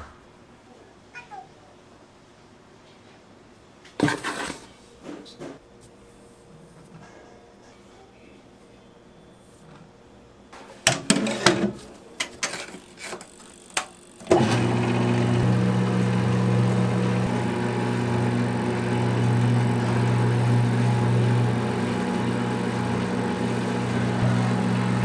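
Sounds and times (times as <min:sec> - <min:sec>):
motor-driven machine humming: 0:13.3 - 0:25.0.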